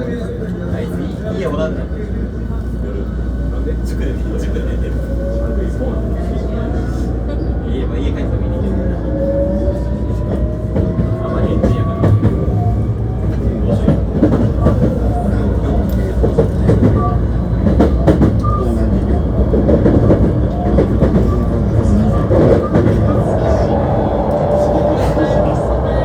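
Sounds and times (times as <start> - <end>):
wheels rumbling on rail: 0.0 - 26.0
electric train inverter whine: 18.0 - 26.0.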